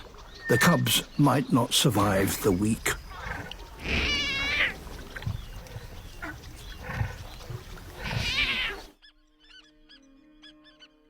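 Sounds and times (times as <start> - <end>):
low natural background: 0.0 - 11.0
lion cubs mewing: 0.5 - 8.9.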